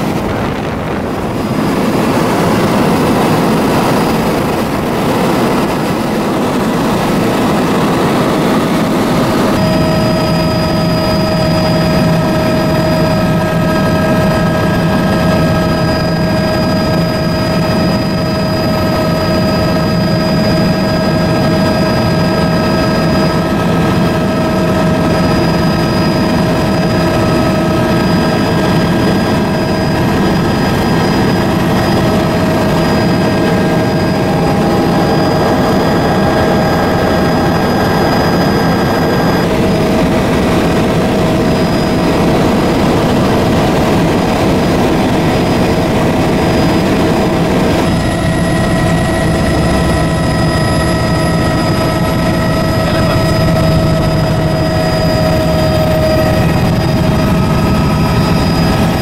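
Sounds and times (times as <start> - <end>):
loud rushing noise: 0.0 - 4.9
aircraft engine drone: 0.0 - 59.0
constant whine: 0.0 - 59.0.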